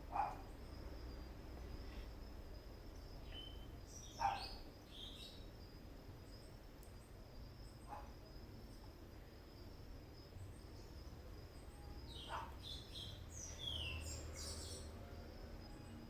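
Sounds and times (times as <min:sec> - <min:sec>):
bird chirps: 0:03.2 - 0:05.5, 0:12.1 - 0:15.0
dog barking faintly: 0:12.2 - 0:12.6.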